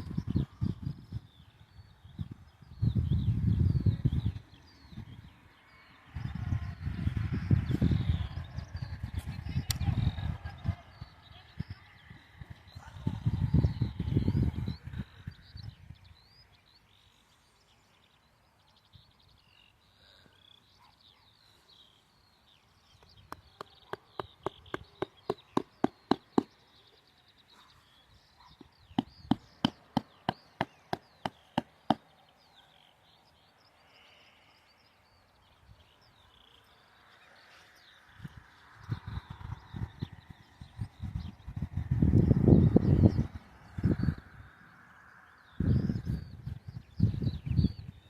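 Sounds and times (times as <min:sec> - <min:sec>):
faint birdsong: 0:00.0 - 0:48.0
tent pegs being hammered: 0:23.3 - 0:26.5, 0:29.0 - 0:32.1.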